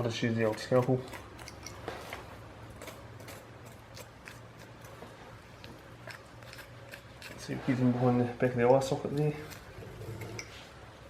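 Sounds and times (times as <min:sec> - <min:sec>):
blade scraping hide: 0:06.1 - 0:10.7.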